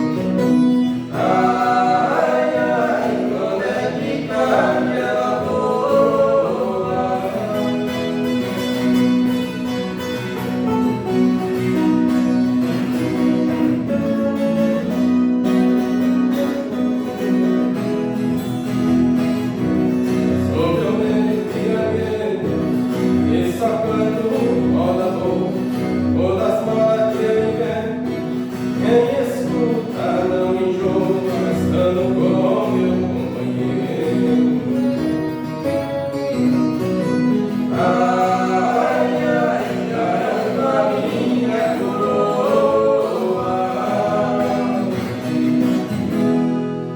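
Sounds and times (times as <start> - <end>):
voices singing together: 0.0 - 9.3, 20.3 - 35.2, 37.5 - 46.2
strummed guitar: 0.0 - 46.9.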